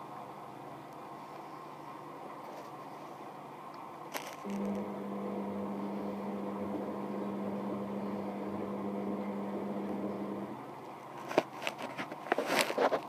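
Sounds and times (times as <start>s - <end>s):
washing machine spinning hum: 4.4s - 11.1s.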